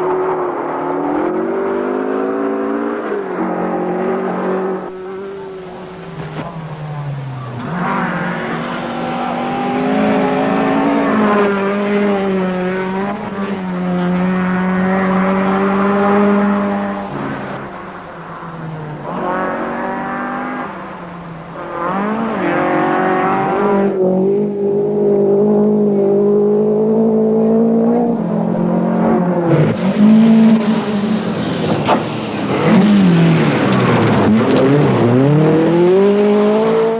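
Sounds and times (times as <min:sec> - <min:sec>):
rally car engine revving hard: 0:00.0 - 0:17.8, 0:18.5 - 0:36.9.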